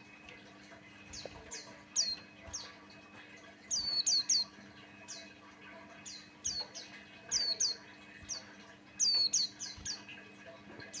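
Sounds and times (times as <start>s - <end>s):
bird chirping: 1.0s - 2.8s, 3.7s - 5.4s, 6.0s - 11.0s.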